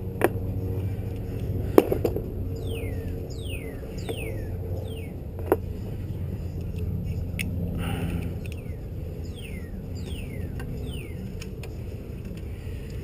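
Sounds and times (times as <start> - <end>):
steady low hum: 0.0 - 13.0
bird chirping: 2.5 - 5.2, 8.4 - 11.4.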